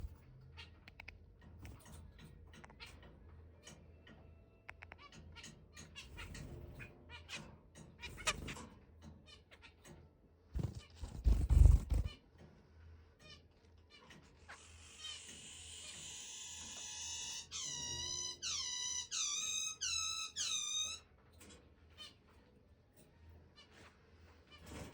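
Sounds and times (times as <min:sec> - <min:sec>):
finches chirping: 0:08.1 - 0:08.6, 0:10.6 - 0:12.1.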